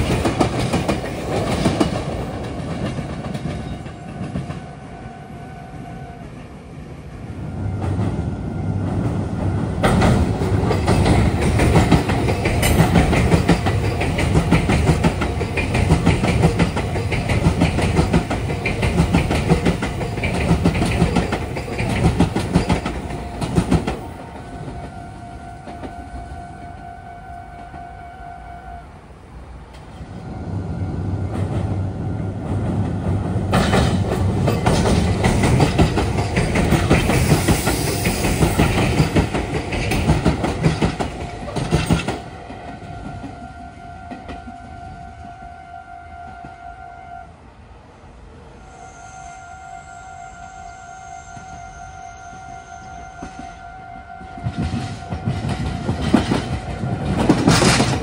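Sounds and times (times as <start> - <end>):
train wheels clacking over rail joints: 0.0 - 4.7, 8.9 - 25.0, 32.4 - 43.4, 54.3 - 58.0.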